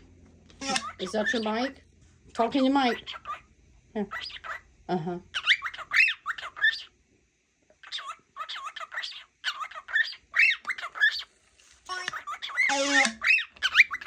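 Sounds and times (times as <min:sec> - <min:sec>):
cockatiel whistled chirps: 0:00.6 - 0:01.6, 0:05.4 - 0:06.9, 0:07.8 - 0:11.3, 0:12.1 - 0:14.0
harsh buzzy bird call: 0:00.6 - 0:01.6.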